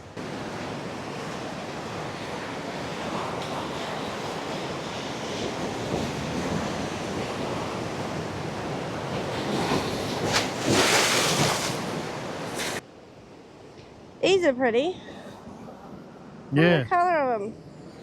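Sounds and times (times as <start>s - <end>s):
ocean surf breaking: 0.1s - 12.8s.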